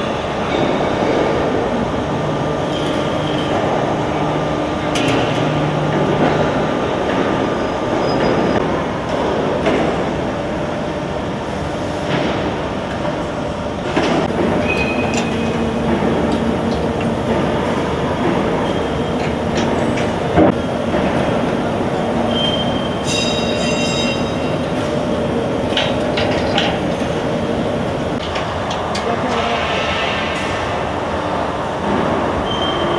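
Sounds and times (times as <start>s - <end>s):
machinery rumble: 0.0s - 32.9s
high-pitched metallic squeals: 22.3s - 24.6s.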